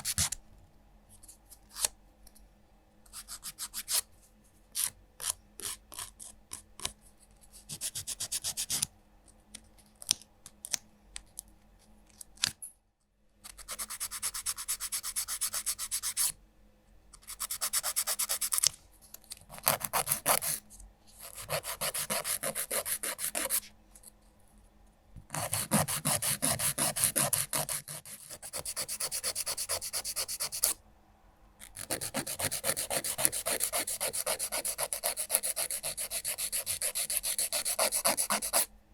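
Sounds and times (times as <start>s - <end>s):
nail file rasping on fingernails: 13.6s - 16.3s, 17.2s - 18.7s, 21.2s - 23.6s, 25.3s - 30.8s, 31.6s - 38.7s.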